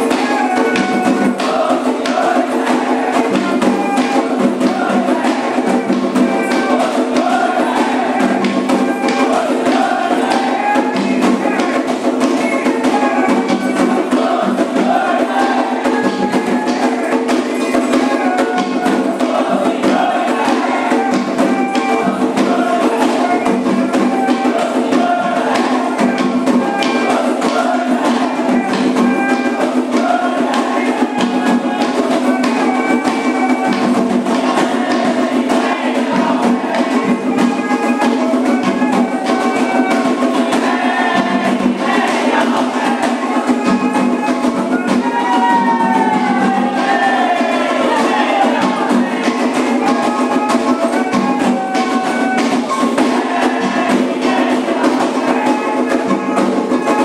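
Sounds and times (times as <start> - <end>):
group singing: 0.0 - 57.0
hand drums playing fast rhythm: 0.0 - 57.0.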